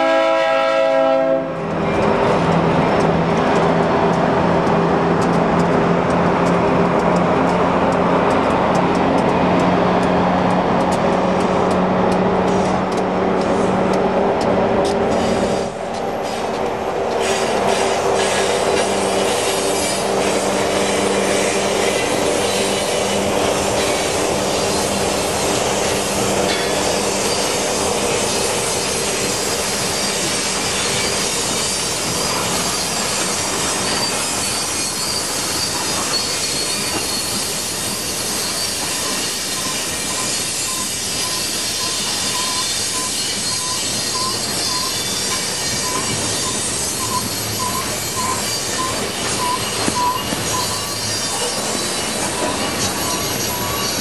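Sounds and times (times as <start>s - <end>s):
train rolling on rails: 0.0s - 54.0s
train wheels squealing: 14.8s - 16.6s, 17.2s - 54.0s.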